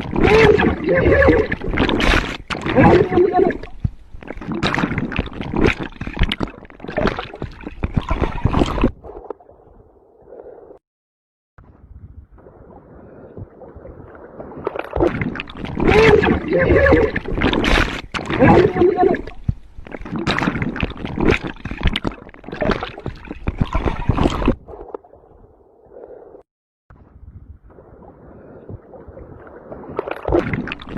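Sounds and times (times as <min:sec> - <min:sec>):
water: 0:00.0 - 0:10.8, 0:11.6 - 0:30.9
boat noise: 0:00.2 - 0:03.7, 0:15.8 - 0:19.8.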